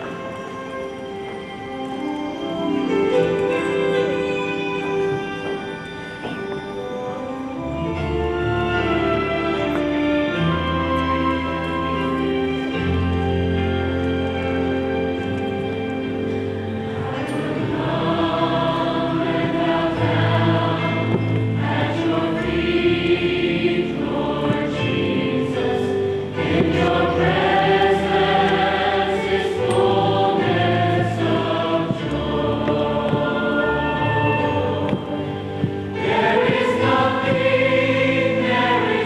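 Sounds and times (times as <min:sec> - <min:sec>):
choir singing: 0:16.7 - 0:39.0.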